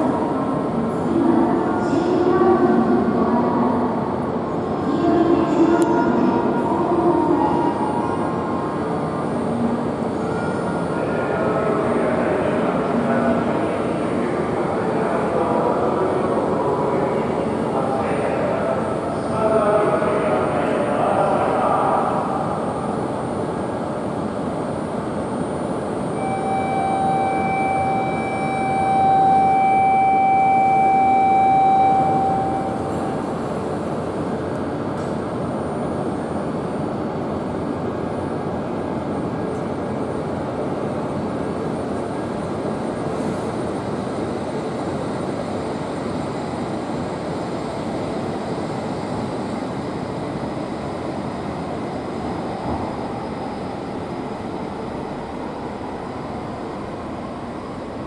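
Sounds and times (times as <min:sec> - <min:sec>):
steady electronic tone: 0:25.4 - 0:33.4.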